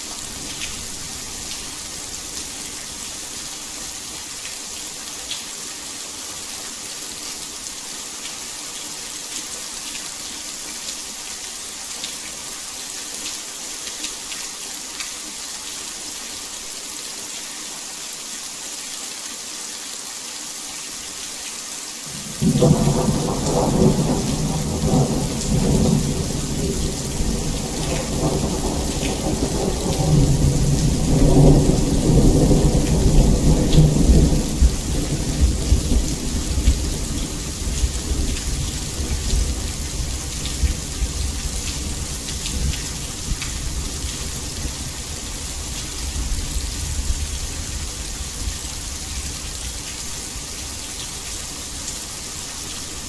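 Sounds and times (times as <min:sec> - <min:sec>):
heavy rain hissing: 0:19.2 - 0:53.0
thunder rumbling: 0:22.1 - 0:41.2.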